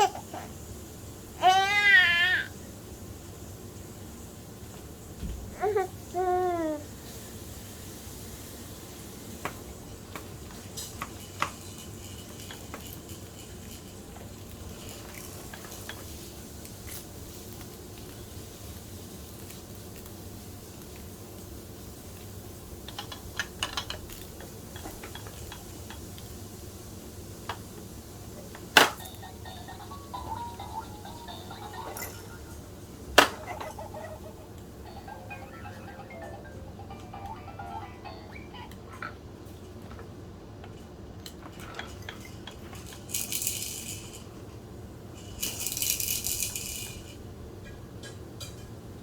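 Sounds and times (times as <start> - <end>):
baby rattle toy shaken: 10.9 - 16.1, 28.8 - 38.2, 41.7 - 44.4, 45.2 - 47.2
plastic toy parts clicking: 22.9 - 26.1
toy parts clicking: 22.9 - 26.3, 28.5 - 32.6, 33.2 - 39.2, 41.2 - 44.3, 45.2 - 47.1.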